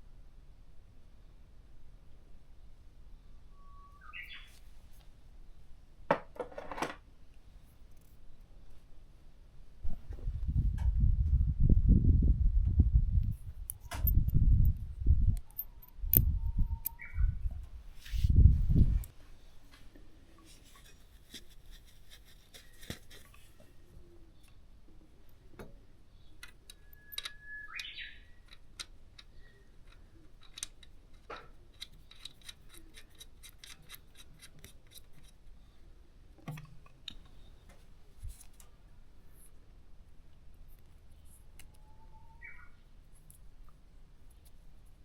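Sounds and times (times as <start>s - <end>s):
brief squeak: 3.5s - 4.6s
small objects clicking and tapping: 26.4s - 35.4s.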